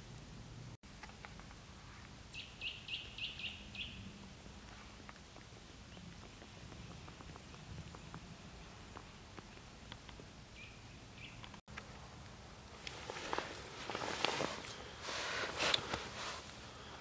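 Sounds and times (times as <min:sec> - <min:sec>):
soft forest background: 0:00.0 - 0:17.0
small bird chirping: 0:02.3 - 0:04.2, 0:10.5 - 0:11.6.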